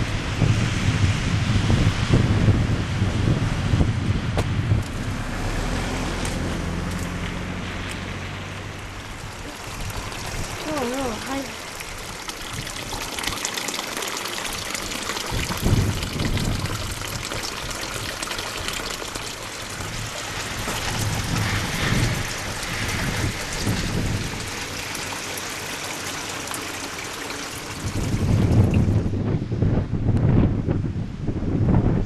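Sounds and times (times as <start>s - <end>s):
wind rumbling on microphone: 0.0s - 13.5s, 14.4s - 25.7s, 27.5s - 32.0s
water hissing: 4.9s - 28.8s.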